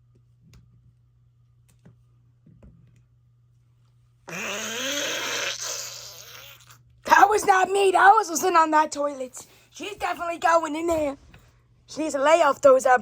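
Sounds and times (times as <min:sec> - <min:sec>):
drawn-out fart sound: 0:04.3 - 0:06.8.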